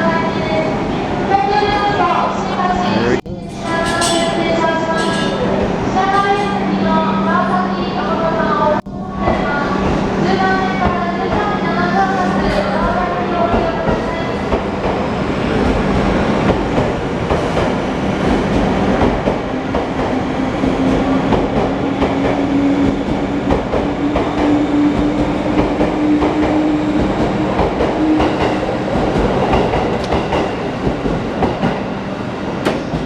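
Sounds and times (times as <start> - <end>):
train wheels clicking on rails: 9.2 - 33.0.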